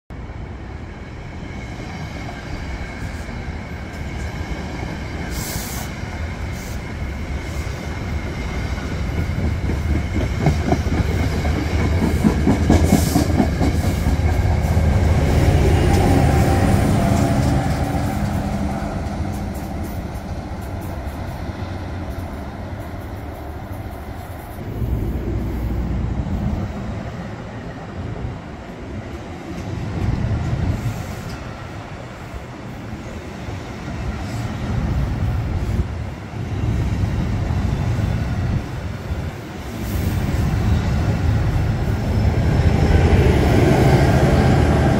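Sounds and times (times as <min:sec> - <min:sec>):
train rumbling past: 0:00.2 - 0:44.9.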